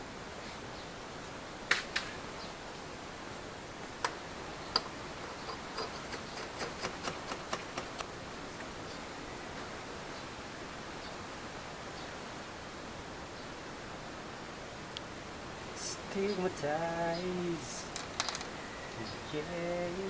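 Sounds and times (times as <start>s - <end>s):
steady hiss: 0.0s - 20.0s
hand tools clicking: 4.0s - 7.6s, 17.9s - 18.6s.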